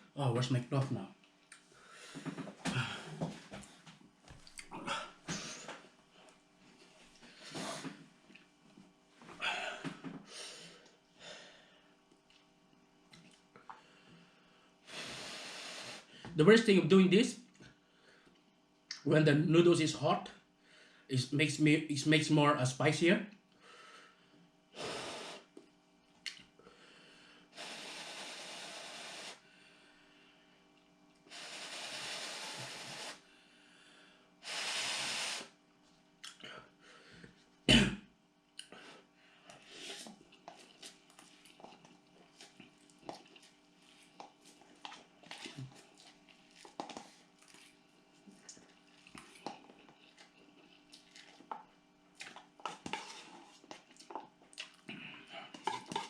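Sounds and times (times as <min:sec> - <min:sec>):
person breathing hard: 0:01.7 - 0:03.7, 0:09.4 - 0:11.9
person blowing hissing breaths: 0:07.3 - 0:08.0, 0:14.8 - 0:16.3, 0:24.8 - 0:25.5, 0:26.7 - 0:30.2, 0:31.3 - 0:35.6.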